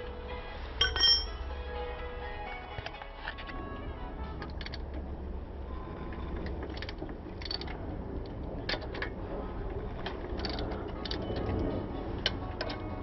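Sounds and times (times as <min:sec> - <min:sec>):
steady low hum: 0:00.0 - 0:13.0
tools and metal parts clinking: 0:00.8 - 0:01.5, 0:04.4 - 0:05.0, 0:06.1 - 0:09.2, 0:09.9 - 0:13.0.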